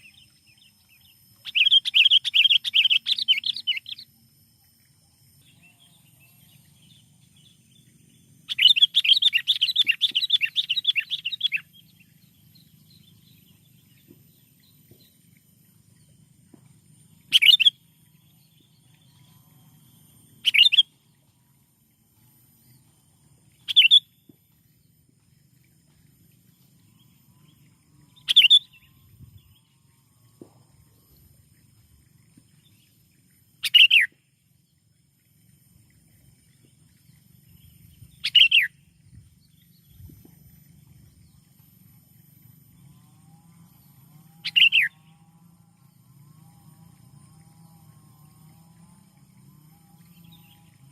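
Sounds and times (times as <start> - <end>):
bird chattering and calling: 28.3 - 28.8, 33.6 - 34.1, 38.2 - 38.7.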